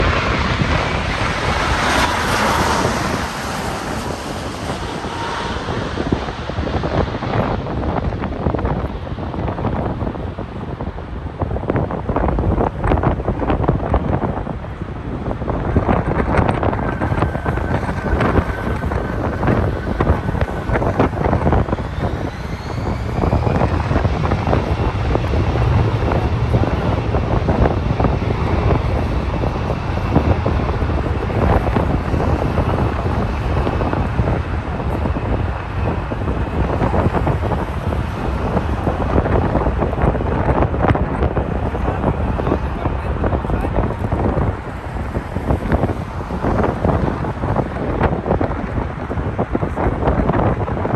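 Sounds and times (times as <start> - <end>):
faint rising whine: 0.0 - 9.2
jet engines rushing: 0.0 - 50.9
wind buffeting microphone: 0.0 - 50.9.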